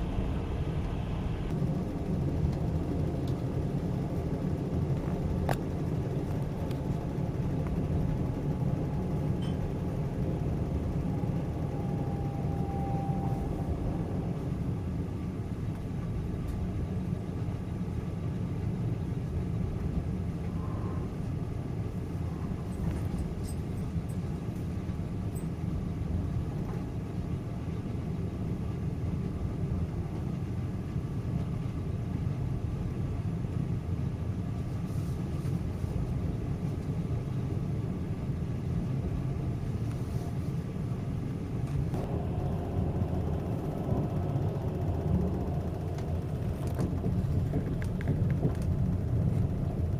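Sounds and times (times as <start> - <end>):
higher-pitched train noise: 0.0 - 1.9, 5.9 - 15.6, 42.0 - 47.4
train rumbling on rails: 0.0 - 49.9.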